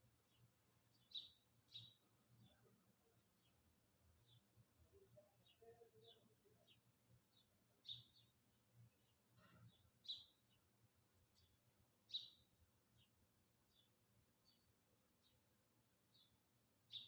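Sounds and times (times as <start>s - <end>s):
small bird chirping: 0.3s - 2.6s, 9.0s - 10.7s, 11.3s - 15.4s, 16.1s - 17.0s.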